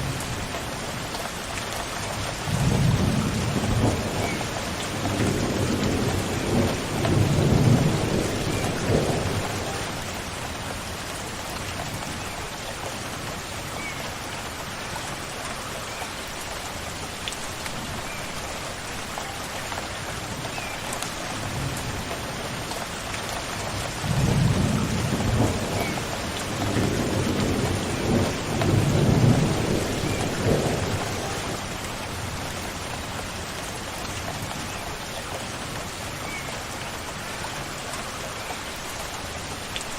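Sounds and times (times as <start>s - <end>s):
steady rain falling: 0.0s - 39.9s
thunder rumbling: 2.5s - 10.1s, 24.0s - 32.3s.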